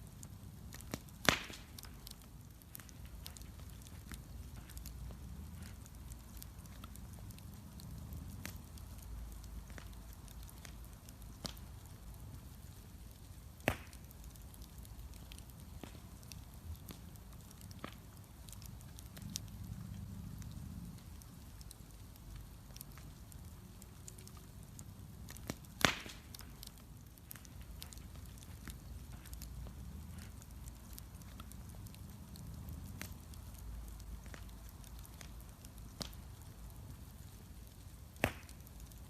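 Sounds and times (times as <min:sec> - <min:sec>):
low steady rumble: 0:00.0 - 0:13.5, 0:14.3 - 0:38.0
bonfire crackling: 0:00.0 - 0:39.0.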